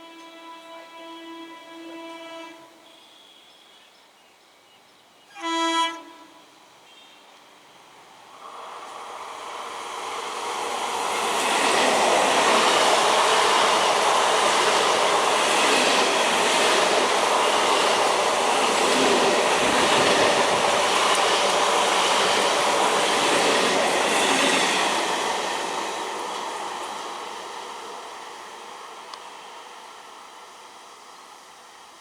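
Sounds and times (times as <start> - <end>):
train wheels on rails: 8.3 - 32.0.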